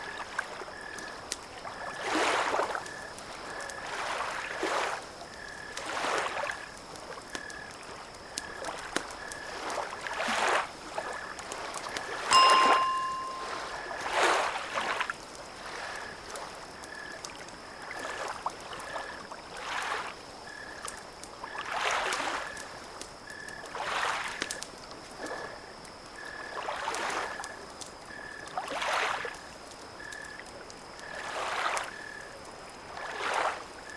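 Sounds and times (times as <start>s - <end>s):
small waves lapping on shore: 0.0s - 13.4s, 14.8s - 20.4s, 21.3s - 22.9s, 23.5s - 27.5s, 28.6s - 29.6s, 31.0s - 33.9s
faint high pulsing tone: 12.3s - 13.6s
short bright ringing tone: 12.3s - 13.7s.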